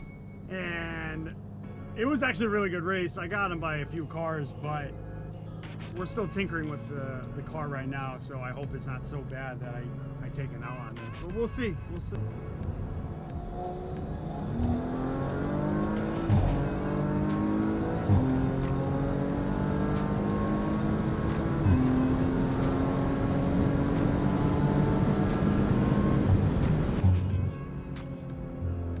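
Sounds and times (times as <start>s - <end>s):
car engine at full throttle: 12.2s - 29.0s.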